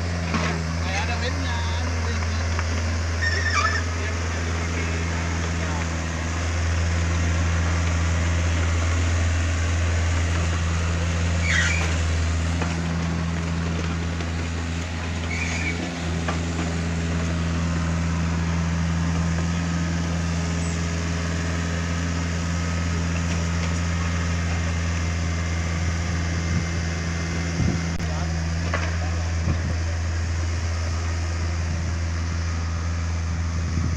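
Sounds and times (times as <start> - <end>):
diesel engine droning: 0.0 - 33.9
high squeaks: 3.2 - 4.0, 11.4 - 12.0, 15.2 - 15.8.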